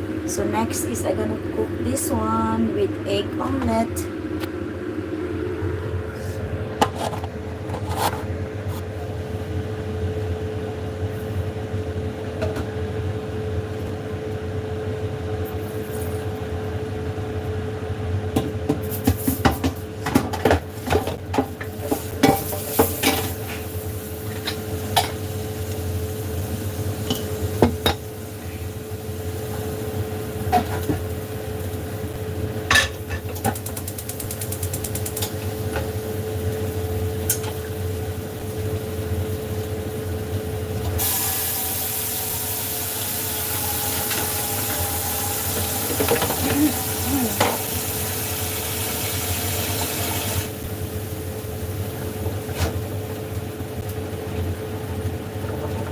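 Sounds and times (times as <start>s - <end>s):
steady hum: 0.0s - 18.4s.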